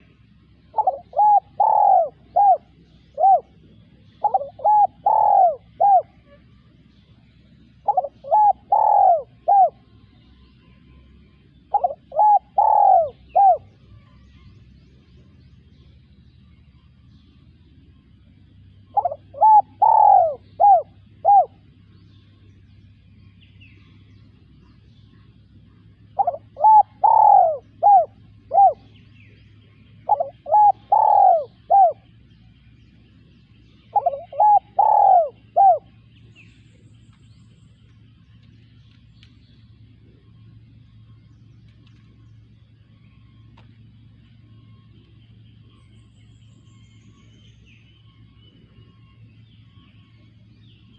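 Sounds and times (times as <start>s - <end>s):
dove cooing: 0.0s - 6.3s, 7.7s - 10.0s, 11.6s - 13.8s, 18.8s - 21.8s, 25.6s - 32.2s, 33.8s - 36.2s.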